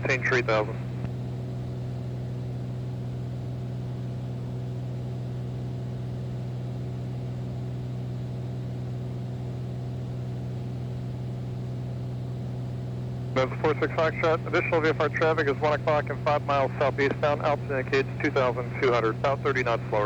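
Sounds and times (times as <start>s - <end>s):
propeller plane engine drone: 0.0s - 20.0s.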